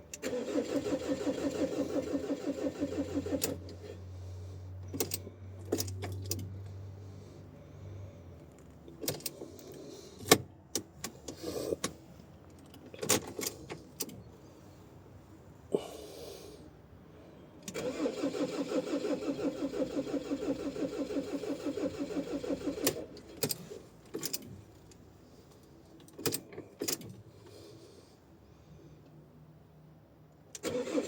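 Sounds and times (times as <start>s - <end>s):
starter cranking engine: 0.1s - 3.8s, 17.7s - 23.7s, 30.6s - 31.0s.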